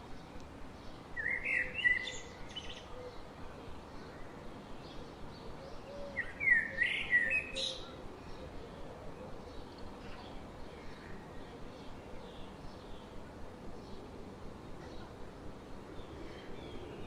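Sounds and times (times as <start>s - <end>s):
steady background hiss: 0.0s - 17.0s
songbird singing warbled phrases: 6.2s - 7.9s.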